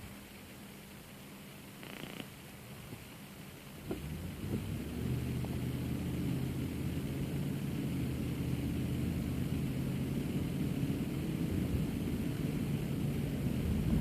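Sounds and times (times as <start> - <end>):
car driving drone: 3.8 - 14.0.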